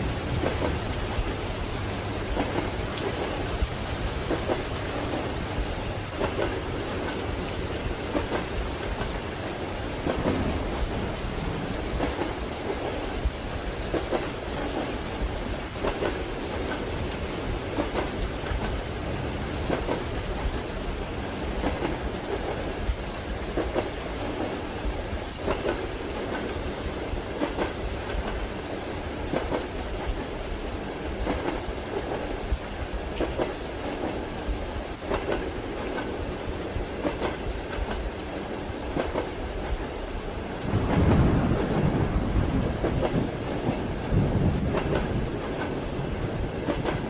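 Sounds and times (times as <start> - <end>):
steady rain: 0.0 - 47.0
train carriage rumble: 0.0 - 47.0
train wheels knocking: 0.1 - 9.3, 9.9 - 13.1, 15.7 - 20.6, 25.4 - 26.5, 40.8 - 47.0.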